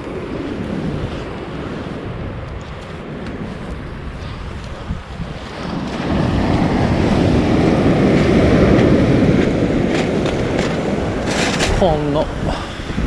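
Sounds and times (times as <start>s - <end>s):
breaking waves: 0.0s - 13.0s
wind on microphone: 0.0s - 13.0s.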